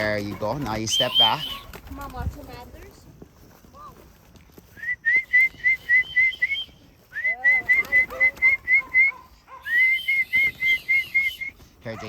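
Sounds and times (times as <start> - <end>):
person whistling short notes: 4.8 - 11.5.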